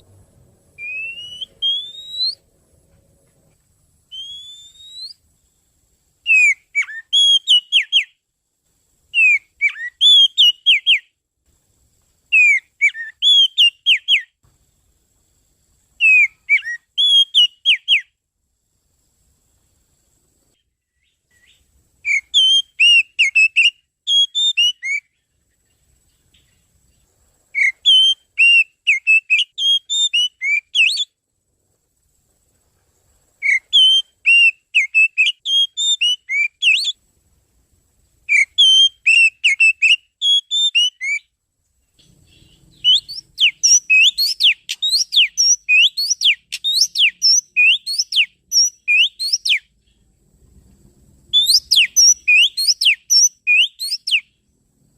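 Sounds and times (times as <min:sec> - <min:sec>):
bird song whistled phrases: 0:00.8 - 0:02.5, 0:04.1 - 0:05.2, 0:06.2 - 0:08.2, 0:09.1 - 0:11.1, 0:12.3 - 0:14.4, 0:16.0 - 0:18.2, 0:20.9 - 0:25.3, 0:27.5 - 0:31.2, 0:33.4 - 0:37.0, 0:38.3 - 0:41.3, 0:42.0 - 0:50.0, 0:51.3 - 0:54.4.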